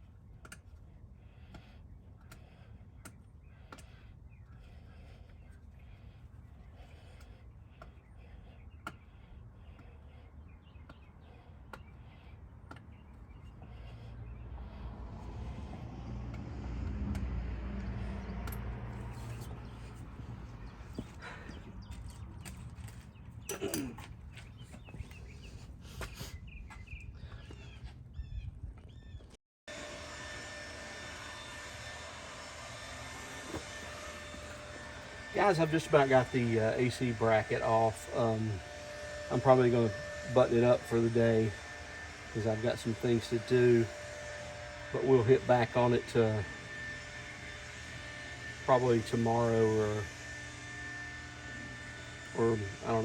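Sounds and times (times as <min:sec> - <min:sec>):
bird chirps: 0:24.3 - 0:29.3
steady noisy hum: 0:29.7 - 0:53.0.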